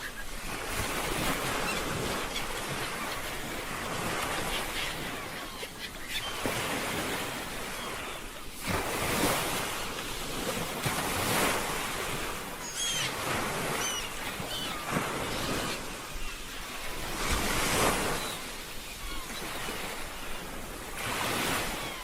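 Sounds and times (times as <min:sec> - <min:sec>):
bird short high calls: 0:12.6 - 0:16.4.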